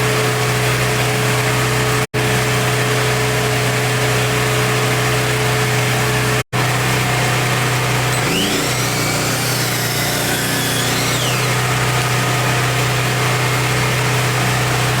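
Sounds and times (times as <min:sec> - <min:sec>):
miter saw motor humming: 0:07.0 - 0:14.2.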